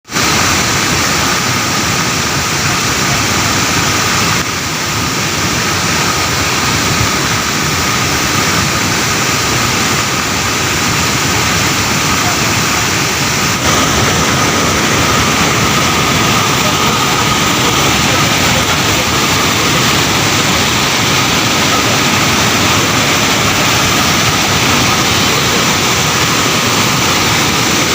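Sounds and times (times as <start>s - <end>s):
road traffic noise: 0.1s - 27.9s
indistinct voices: 11.6s - 27.9s.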